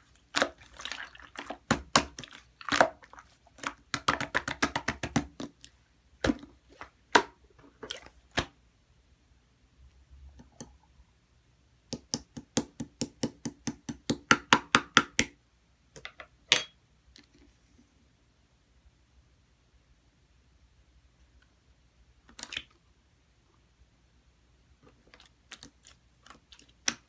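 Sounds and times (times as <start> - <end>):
slime kneaded with clicking pops: 0.2 - 5.8, 11.9 - 15.4, 25.2 - 27.0.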